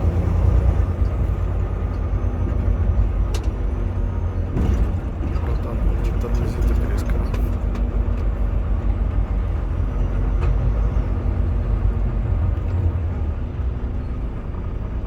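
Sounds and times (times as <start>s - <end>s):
truck diesel engine and tyre noise: 0.0s - 15.0s.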